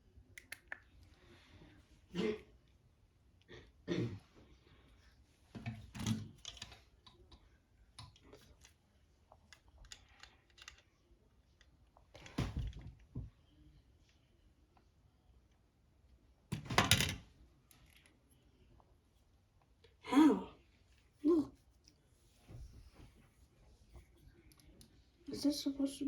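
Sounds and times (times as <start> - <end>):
plastic parts clicking and clattering: 5.6 - 7.4, 9.5 - 10.9, 16.5 - 18.1.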